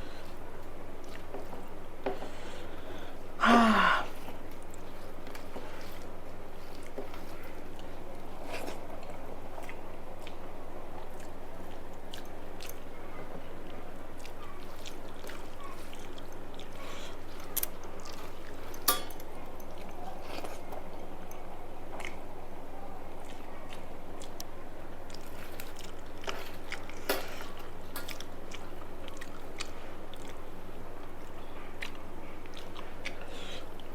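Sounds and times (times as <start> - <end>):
person chewing food: 0.0 - 33.9
steady low hum: 0.0 - 33.9.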